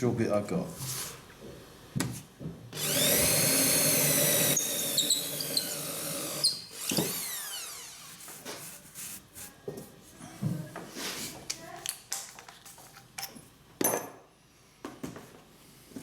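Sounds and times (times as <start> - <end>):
electric drill boring: 2.8 - 8.3.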